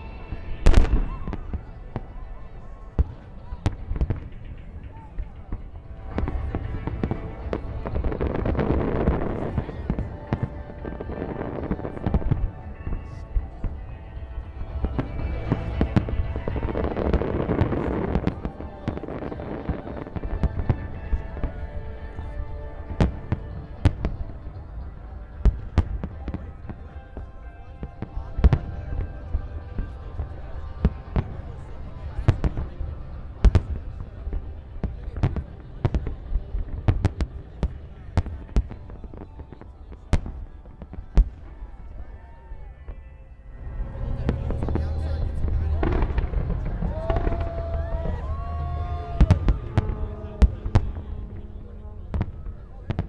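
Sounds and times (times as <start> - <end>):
music playing: 0.0 - 34.9, 38.1 - 53.0
fireworks crackling: 3.0 - 41.8, 43.5 - 53.0
low rumble: 43.4 - 52.8
fireworks bangs: 43.6 - 53.0.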